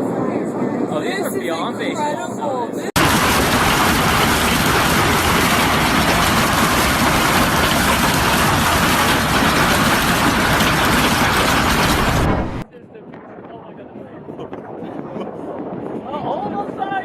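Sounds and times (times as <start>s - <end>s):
steady rushing roar: 2.9s - 12.6s.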